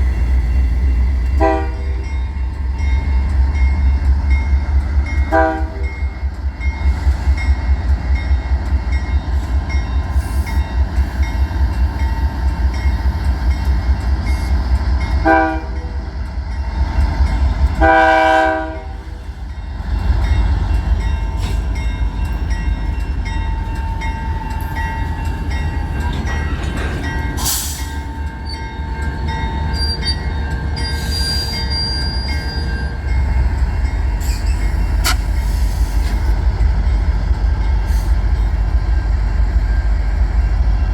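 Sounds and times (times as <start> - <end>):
passing train rumble: 0.0 - 40.9
locomotive horn blasts: 1.4 - 2.1, 5.3 - 5.9, 15.2 - 16.0, 17.7 - 19.1.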